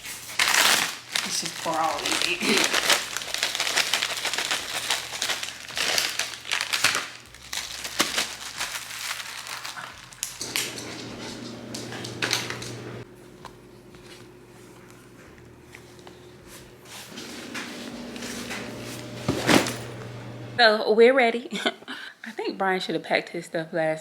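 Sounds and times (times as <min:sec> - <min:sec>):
plastic packaging crinkling: 0:00.0 - 0:12.7
steady hum: 0:10.4 - 0:20.6.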